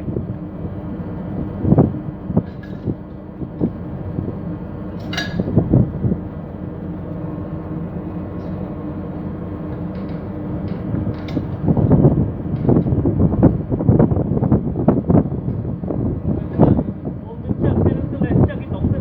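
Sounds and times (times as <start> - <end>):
low hum of machinery: 0.0 - 19.0
metallic knocks and clatters: 5.0 - 5.6, 9.8 - 11.6.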